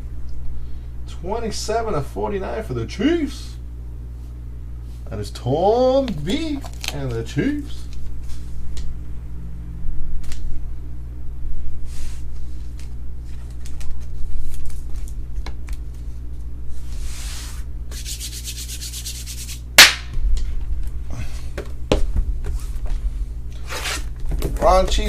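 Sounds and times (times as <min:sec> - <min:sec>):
steady low hum: 0:00.0 - 0:25.0
cards rubbing and sliding: 0:16.7 - 0:19.7, 0:23.5 - 0:24.2.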